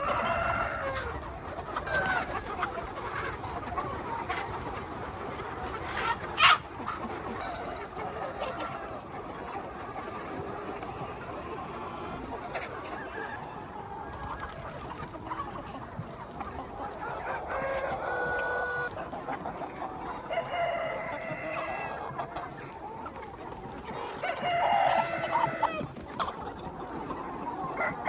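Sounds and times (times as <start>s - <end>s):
rooster crowing: 0.0s - 1.1s, 24.2s - 25.8s
chickens clucking: 0.0s - 28.0s.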